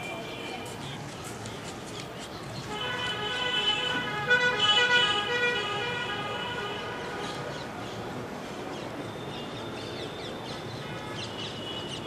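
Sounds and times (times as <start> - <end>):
birds chirping: 0.0 - 3.6
outdoor background noise: 0.0 - 12.0.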